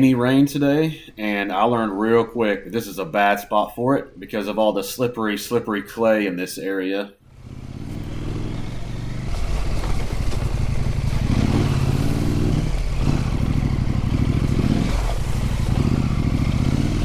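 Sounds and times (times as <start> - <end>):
motorcycle engine running under load: 7.3 - 17.0.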